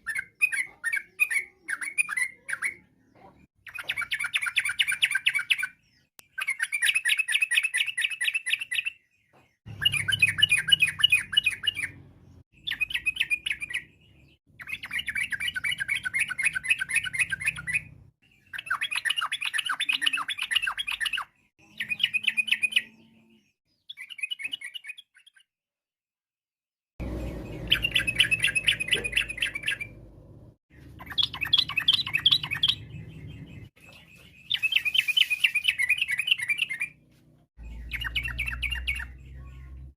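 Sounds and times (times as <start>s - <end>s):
bird chattering song: 0.0s - 25.5s, 27.0s - 30.1s, 30.7s - 37.0s, 37.6s - 39.9s.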